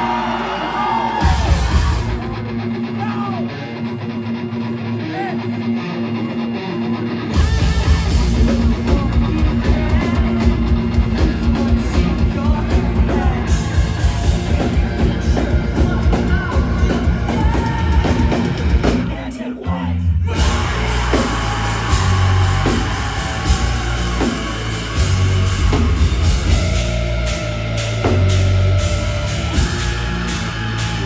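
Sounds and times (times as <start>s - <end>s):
bass and drums: 0.0s - 3.2s, 7.3s - 31.0s
live rock band playing: 0.0s - 4.5s, 5.1s - 19.3s, 20.3s - 31.0s
guitars playing: 20.4s - 31.0s.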